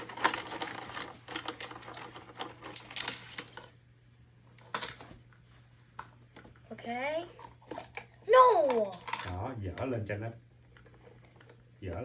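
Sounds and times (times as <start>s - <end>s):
plastic toy parts clicking: 8.6s - 9.4s.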